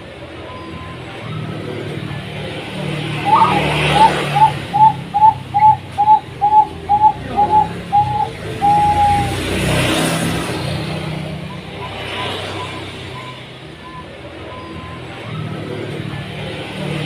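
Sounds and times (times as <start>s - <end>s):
low traffic rumble: 0.0s - 17.0s
dove cooing: 3.1s - 9.5s.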